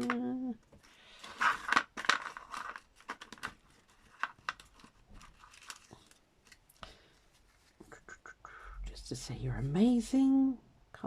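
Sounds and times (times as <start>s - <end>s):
paper crinkling and rustling: 0.0s - 7.8s.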